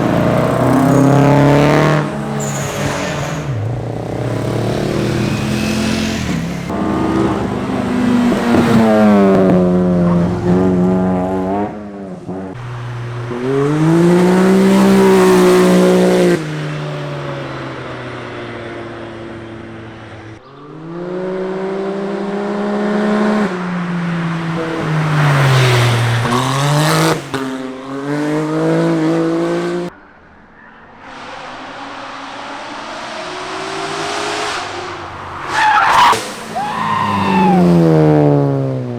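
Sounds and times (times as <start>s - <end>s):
car engines revving past: 0.0s - 38.9s
tyre squeal: 0.7s - 3.8s, 35.4s - 38.0s.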